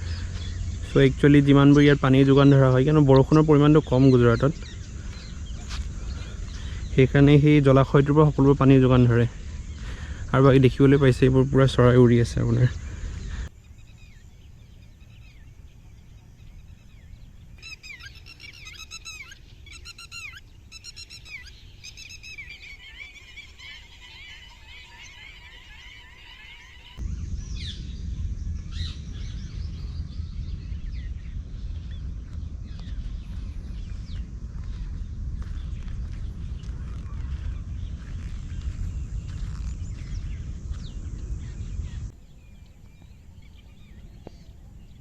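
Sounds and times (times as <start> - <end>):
low rumble: 0.0 - 17.6, 26.8 - 45.0
birds chattering: 0.0 - 45.0
waterbirds calling: 0.0 - 45.0.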